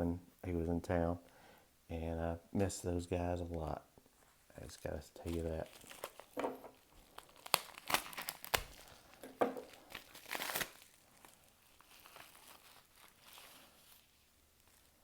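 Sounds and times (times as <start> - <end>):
packaging crinkling and tearing: 4.6 - 15.0.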